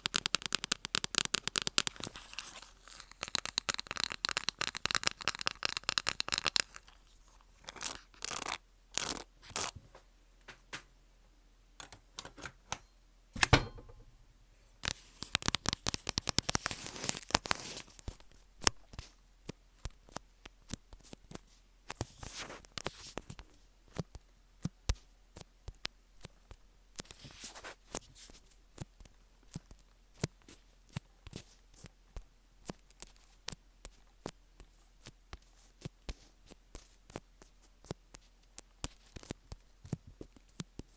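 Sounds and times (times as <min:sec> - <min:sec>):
crisp clicks and tapping: 0:00.0 - 0:11.0, 0:14.8 - 0:24.2.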